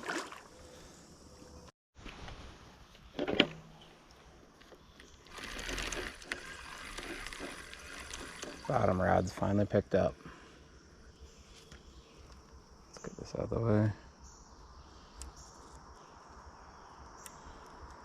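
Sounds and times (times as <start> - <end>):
fishing reel ticking: 5.2 - 9.4.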